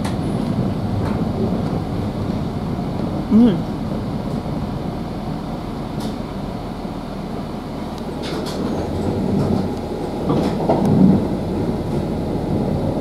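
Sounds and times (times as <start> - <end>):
train running low rumble: 0.0 - 13.0.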